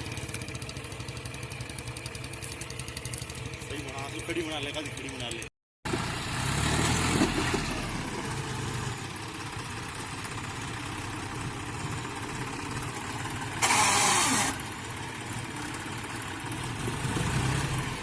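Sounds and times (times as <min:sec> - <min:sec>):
tractor diesel engine running: 0:00.0 - 0:18.0
loud burst of noise: 0:13.6 - 0:14.6.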